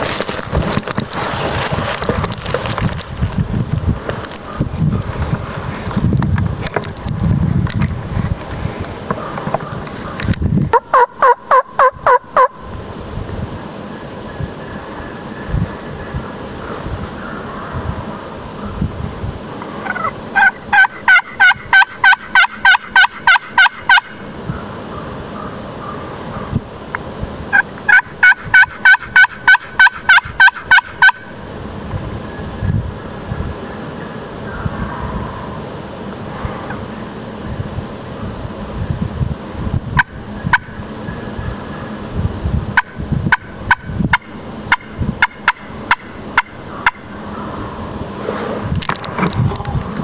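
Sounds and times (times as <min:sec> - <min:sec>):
soft rustle: 0:00.0 - 0:10.4, 0:48.2 - 0:50.0
wild turkey yelps: 0:10.8 - 0:12.6, 0:19.8 - 0:24.1, 0:27.5 - 0:31.3.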